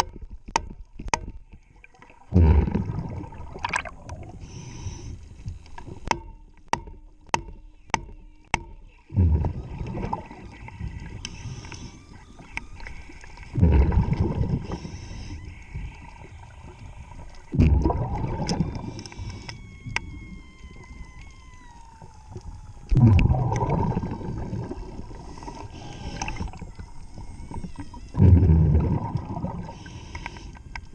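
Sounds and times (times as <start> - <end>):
underwater regulator bubbling: 1.9 - 6.1, 9.1 - 30.9.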